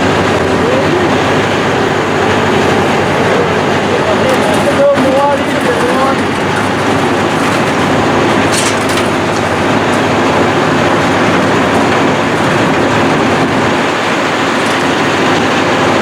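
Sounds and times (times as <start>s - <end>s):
demolition machinery engine drone: 0.0s - 16.0s
debris breaking: 3.8s - 16.0s.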